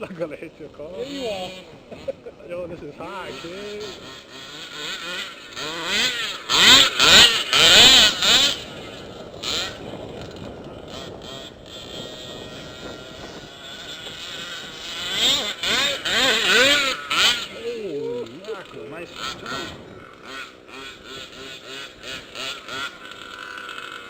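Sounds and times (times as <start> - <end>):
small two-stroke engine revving: 0.0 - 24.0.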